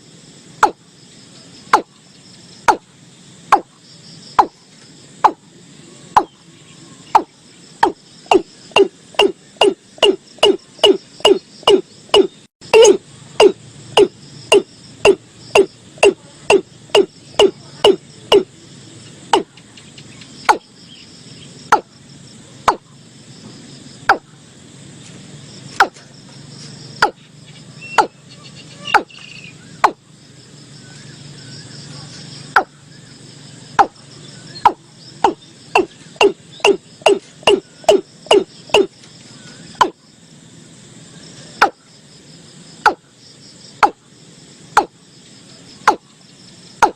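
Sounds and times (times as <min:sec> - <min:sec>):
insects trilling: 0:00.0 - 0:46.9
bird calling low notes: 0:05.2 - 0:21.9, 0:27.0 - 0:30.2, 0:30.8 - 0:40.0.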